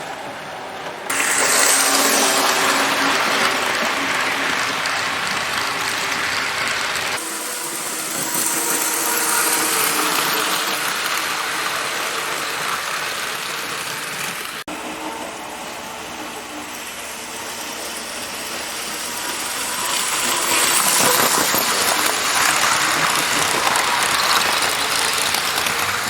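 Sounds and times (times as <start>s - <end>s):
wheels rattling over rails: 0.0s - 14.6s, 16.1s - 26.0s
model train motors whirring: 1.1s - 26.0s.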